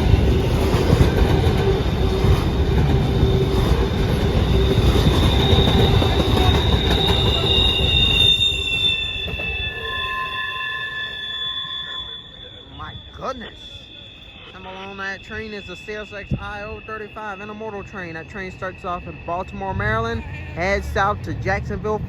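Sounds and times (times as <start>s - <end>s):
train wheels rumbling on rail: 0.0s - 10.1s
high wheel squeal: 0.0s - 21.4s.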